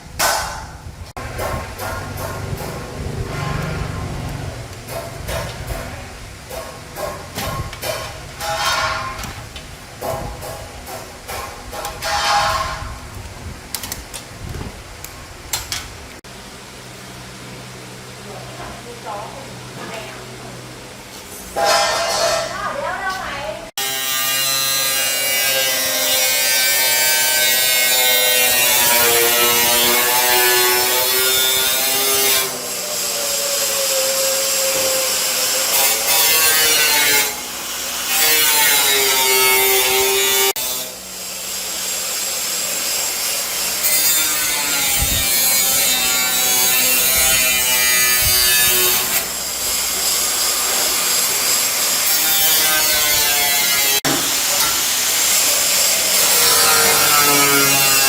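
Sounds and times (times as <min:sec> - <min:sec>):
electric power tool cutting: 0:23.8 - 0:58.0.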